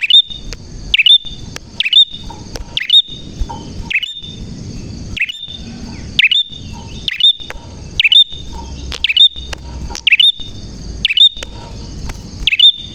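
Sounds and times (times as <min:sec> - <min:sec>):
bird singing sharp call: 0:00.0 - 0:12.9.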